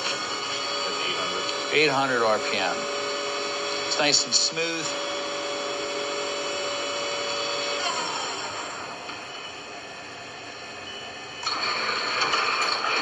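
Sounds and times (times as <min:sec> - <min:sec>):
lathe spindle whining: 0:00.0 - 0:13.0.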